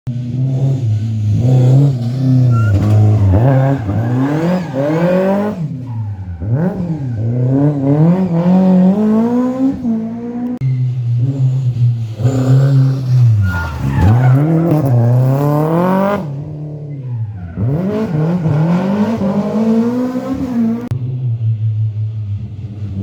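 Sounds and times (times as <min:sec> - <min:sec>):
rally car engine revving: 0:00.1 - 0:23.0.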